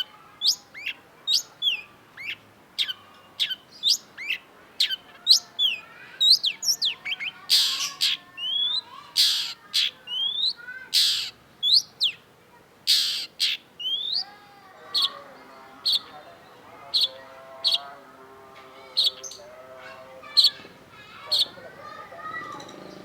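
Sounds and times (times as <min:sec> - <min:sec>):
harsh rasping bird notes: 0:11.0 - 0:11.4, 0:12.9 - 0:14.1
bird singing chips and whistles: 0:13.8 - 0:14.2.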